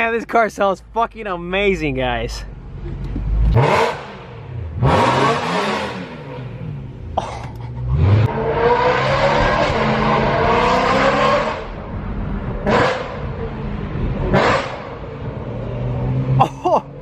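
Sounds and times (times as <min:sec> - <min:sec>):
car engine revving: 0:02.6 - 0:16.5.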